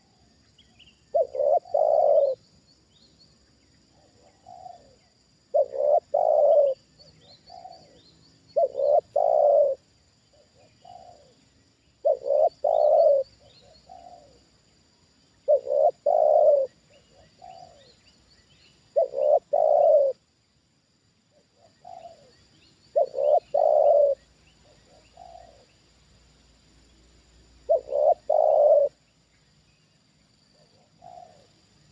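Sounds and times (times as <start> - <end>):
dove cooing: 1.1 - 2.4, 3.9 - 8.0, 8.6 - 11.4, 12.0 - 14.4, 15.4 - 18.0, 18.9 - 20.2, 21.4 - 25.7, 27.6 - 29.0, 30.6 - 31.5.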